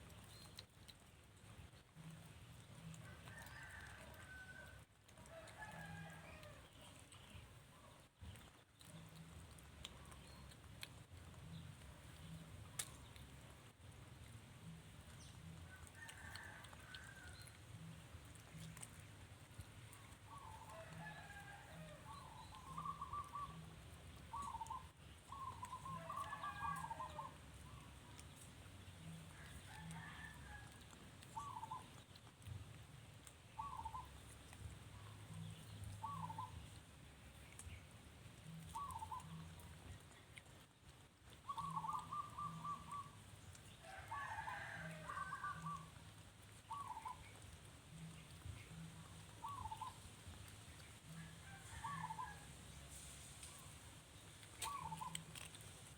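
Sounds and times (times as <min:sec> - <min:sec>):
faint low hum: 0:00.0 - 0:55.9
chirps: 0:24.3 - 0:26.0, 0:35.0 - 0:36.8, 0:38.6 - 0:39.5, 0:46.7 - 0:47.4.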